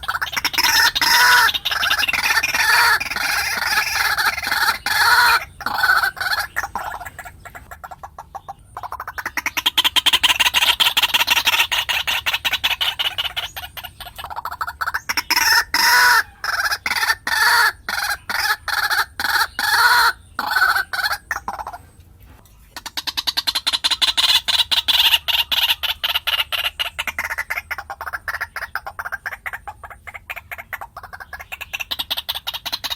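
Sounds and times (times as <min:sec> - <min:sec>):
waterhen calling: 0:00.0 - 0:32.9.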